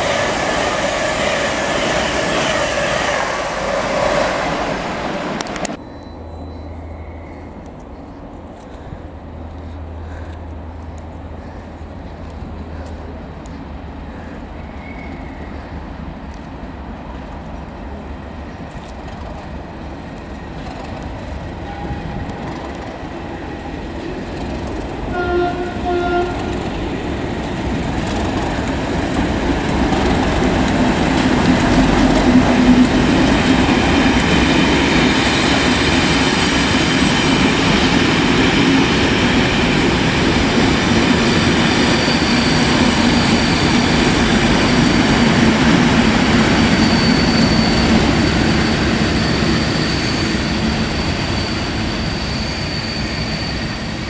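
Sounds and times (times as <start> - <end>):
train rumbling past: 0.0 - 54.0
train horn blast: 25.1 - 26.7.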